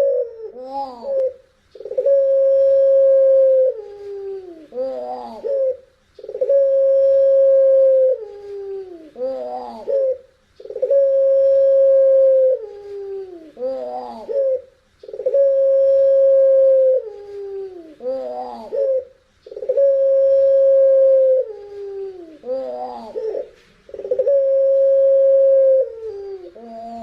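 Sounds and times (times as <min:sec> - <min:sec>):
dove cooing: 0:00.0 - 0:27.0.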